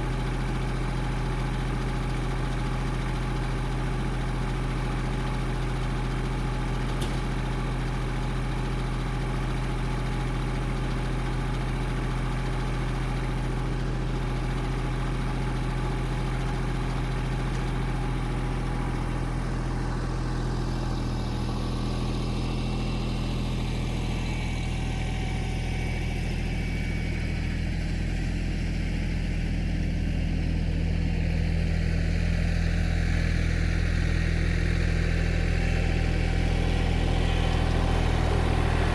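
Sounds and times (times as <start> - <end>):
engine idling: 0.0 - 38.9
click: 7.0 - 7.3.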